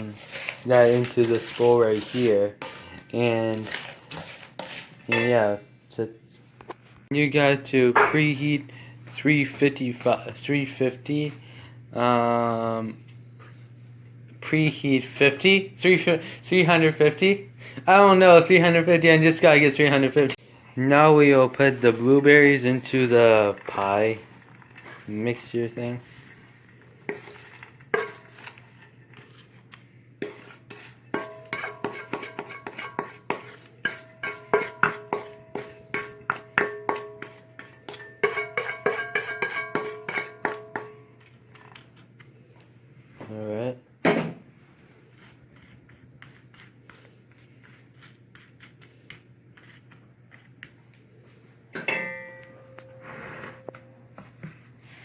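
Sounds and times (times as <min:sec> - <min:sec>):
spoon scraping a bowl: 0:00.0 - 0:05.2, 0:21.2 - 0:29.5, 0:30.2 - 0:42.0, 0:45.0 - 0:50.7
dishes and utensils clicking: 0:30.2 - 0:41.0
ringing spoon knocks: 0:51.8 - 0:53.0
spoon clinking: 0:51.9 - 0:53.0
low hum: 0:51.9 - 0:54.3.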